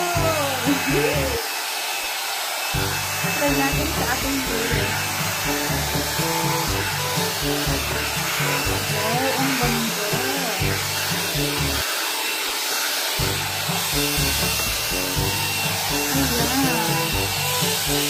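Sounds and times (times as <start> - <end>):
hot-air hair styler blowing: 0.0 - 18.0
background music: 2.8 - 11.8, 13.2 - 18.0.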